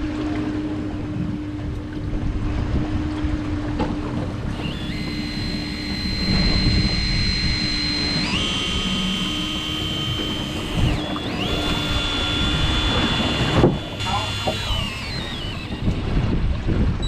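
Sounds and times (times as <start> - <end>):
boat engine hum: 0.0 - 17.0
water noise: 0.0 - 17.0
wind buffeting the microphone: 0.9 - 4.6, 14.6 - 17.0
high thin whine: 4.5 - 16.4.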